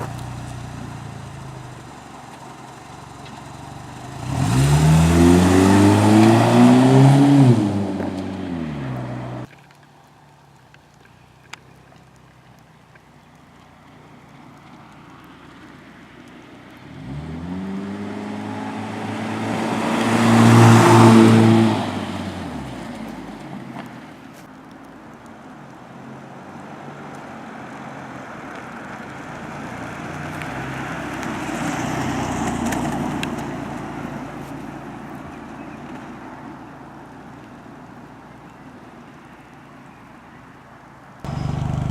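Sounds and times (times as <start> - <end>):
car engine through exhaust: 0.0 - 9.6, 12.6 - 24.2, 41.2 - 41.9
passing vehicle noise: 0.0 - 9.6, 13.6 - 41.9.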